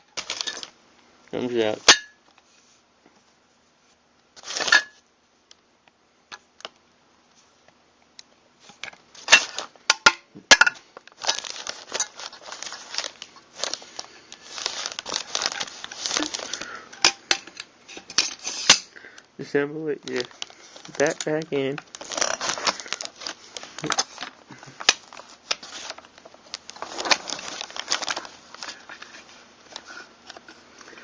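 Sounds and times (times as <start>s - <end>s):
metal gun parts clicking and scraping: 17.0s - 18.9s, 22.1s - 22.5s.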